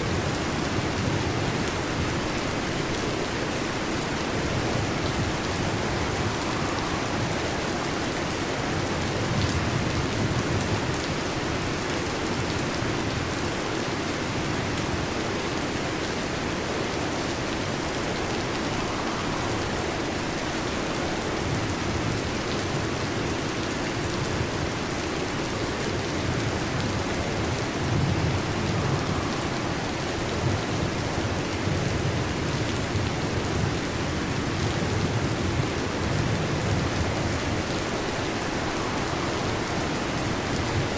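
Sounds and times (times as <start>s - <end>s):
heavy rain on a metal roof: 0.0s - 40.9s
low thunder rumbling: 3.1s - 10.9s, 16.6s - 23.1s, 26.0s - 40.9s.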